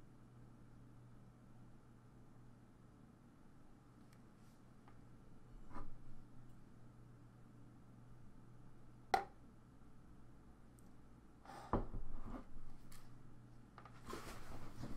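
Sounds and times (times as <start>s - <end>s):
faint steady hum: 0.0s - 14.9s
scuff and rustle of movement: 14.0s - 14.9s.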